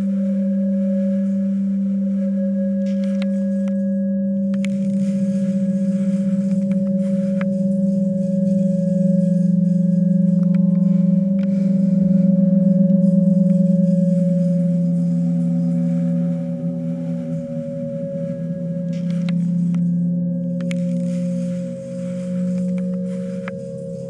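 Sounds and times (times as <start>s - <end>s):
low electronic hum: 0.0s - 24.0s
faint clicks: 4.5s - 5.0s.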